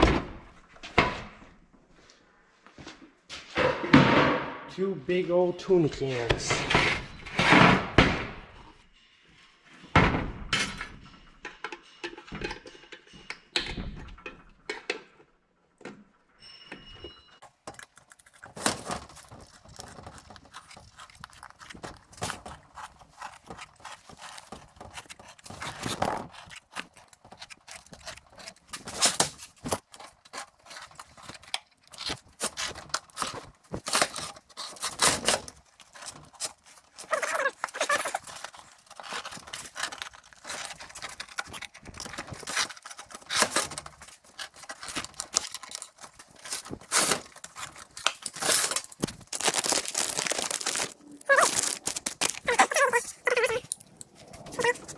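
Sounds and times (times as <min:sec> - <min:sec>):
objects handled and set down: 0:16.6 - 0:54.9.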